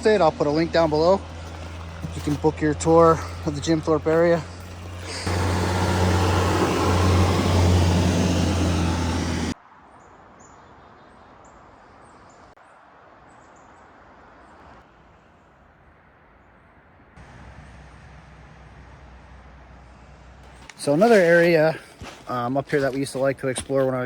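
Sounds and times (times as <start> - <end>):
vehicle engine running: 0.0 - 9.6, 17.2 - 21.2.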